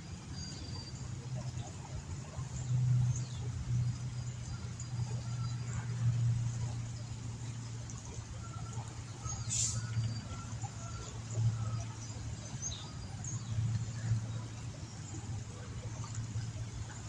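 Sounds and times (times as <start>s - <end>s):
low hum: 0.0s - 17.0s
brief hiss: 9.5s - 9.9s.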